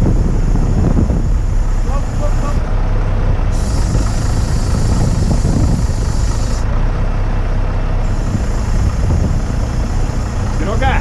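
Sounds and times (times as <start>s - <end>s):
diesel engine rumbling: 0.0s - 11.0s
high hiss: 3.5s - 6.7s.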